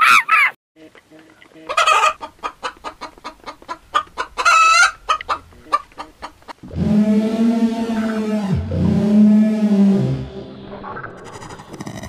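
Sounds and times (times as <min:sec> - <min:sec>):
chickens clucking: 0:00.0 - 0:06.7.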